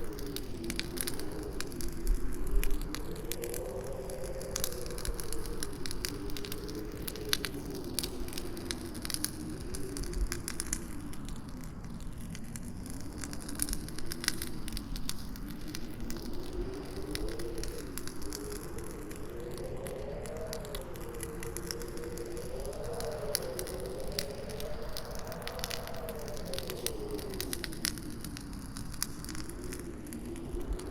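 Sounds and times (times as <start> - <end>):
campfire crackling and popping: 0.0 - 30.9
wind howling: 0.0 - 30.9.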